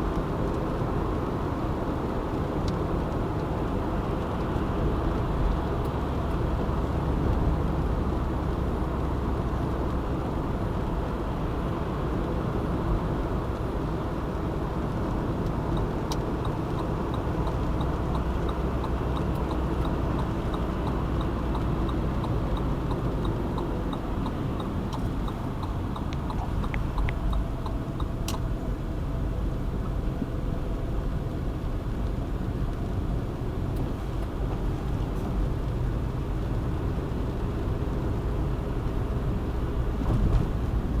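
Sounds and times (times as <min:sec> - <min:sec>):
car road and engine noise: 0:00.0 - 0:41.0
light regular ticking: 0:15.0 - 0:28.6.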